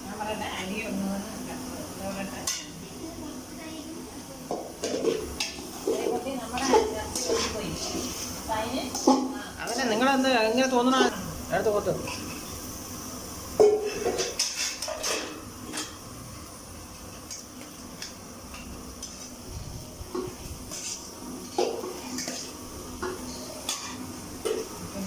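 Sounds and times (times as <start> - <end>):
metal spoon scraping a pan: 4.8 - 9.9, 13.6 - 16.0, 20.2 - 24.7.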